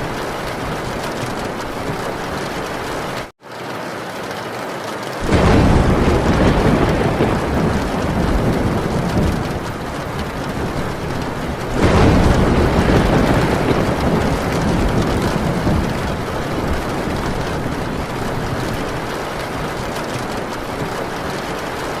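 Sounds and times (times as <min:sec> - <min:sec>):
heavy rain on a tin roof: 0:00.0 - 0:22.0
rolling thunder: 0:05.2 - 0:22.0.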